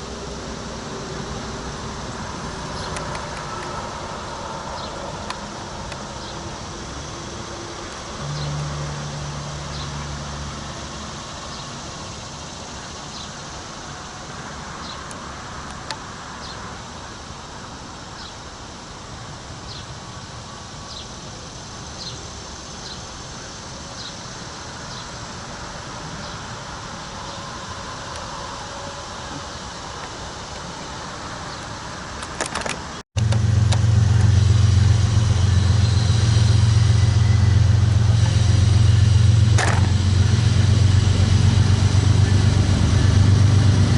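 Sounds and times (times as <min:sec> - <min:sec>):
low hum: 0:00.0 - 0:14.8, 0:33.2 - 0:43.9
steady hiss: 0:00.0 - 0:43.9.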